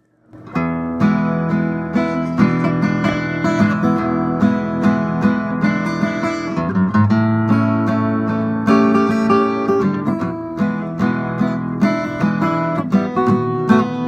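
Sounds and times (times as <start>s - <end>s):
strummed acoustic guitar: 0.0s - 14.0s.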